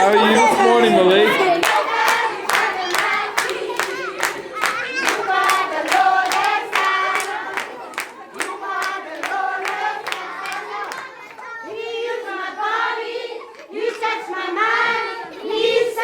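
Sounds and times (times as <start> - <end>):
children clapping in time: 0.0 - 11.5
children singing together: 0.0 - 16.0.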